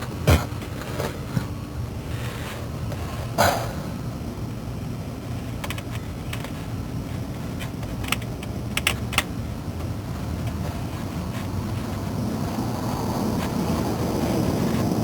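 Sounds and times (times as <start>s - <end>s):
steady low rumble: 0.0s - 15.0s
hand tools clicking and tapping: 5.3s - 12.1s.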